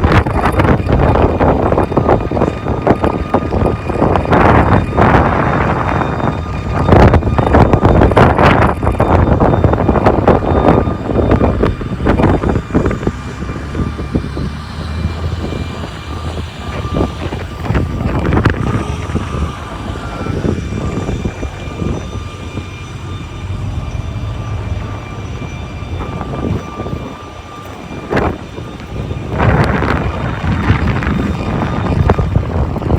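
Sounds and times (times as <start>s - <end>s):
faint steady whine: 0.0s - 32.9s
low rumble: 0.0s - 32.9s
wind gusting over microphone: 0.0s - 32.9s.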